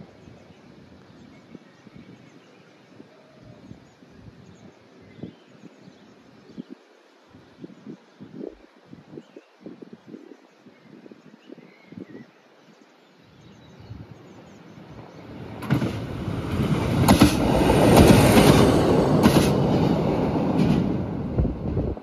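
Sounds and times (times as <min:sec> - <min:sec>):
train passing: 0:14.4 - 0:22.0
wheel clacks on track: 0:15.6 - 0:21.1.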